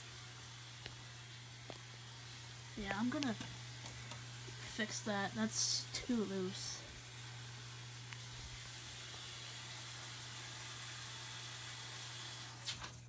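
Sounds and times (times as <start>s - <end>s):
water hissing into washing machine: 0.0s - 13.0s.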